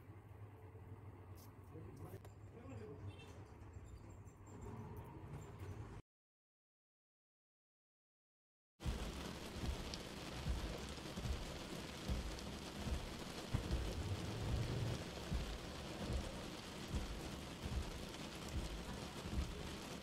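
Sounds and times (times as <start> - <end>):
soft low thuds: 8.8 - 19.8
rain hissing: 8.8 - 20.0.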